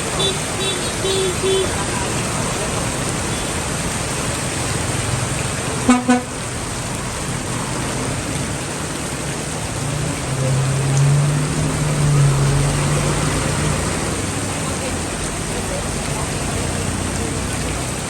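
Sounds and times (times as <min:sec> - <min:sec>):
heavy rain hiss: 0:00.0 - 0:18.0
road traffic: 0:00.0 - 0:18.0
vehicle horn toots: 0:05.9 - 0:06.4
passing vehicle engine drone: 0:09.6 - 0:15.3.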